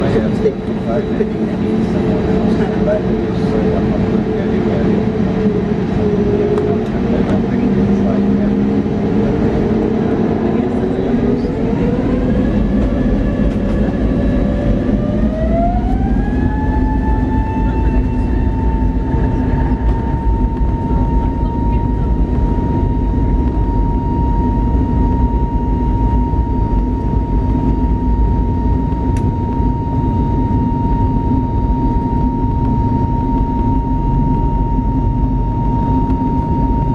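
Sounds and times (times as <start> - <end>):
faint passenger voices: 0.0 - 27.8
airplane cabin rumble: 0.0 - 36.9.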